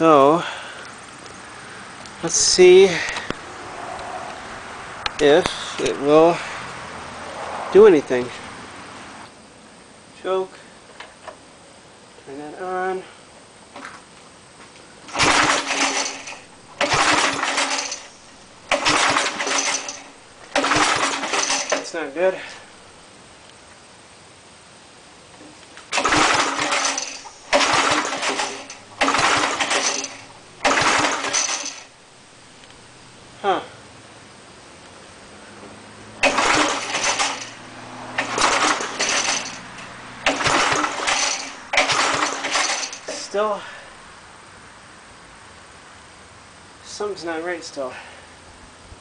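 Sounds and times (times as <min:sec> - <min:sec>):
small engine being pull-started: 0:15.1 - 0:22.0, 0:25.9 - 0:32.0, 0:36.2 - 0:43.4.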